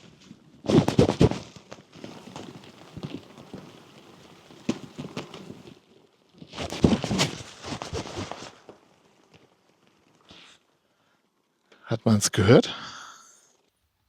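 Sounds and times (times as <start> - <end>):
flies knocking against cover: 0.6 - 5.8, 6.4 - 9.5.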